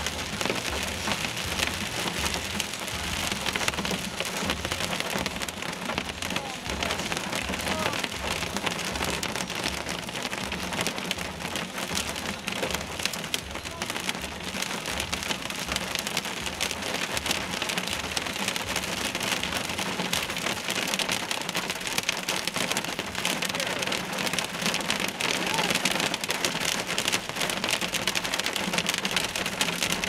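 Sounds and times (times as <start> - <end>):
rain and hail drumming on car roof: 0.0 - 30.0.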